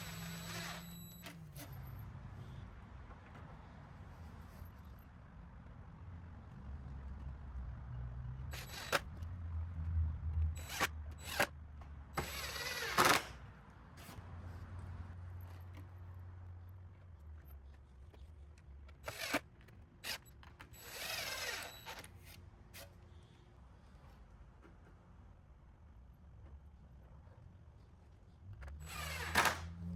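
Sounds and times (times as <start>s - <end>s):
power drill whirring: 0.0s - 1.7s, 8.5s - 9.2s, 10.6s - 11.5s, 12.2s - 13.4s, 19.0s - 19.4s, 20.0s - 22.1s, 28.8s - 29.8s.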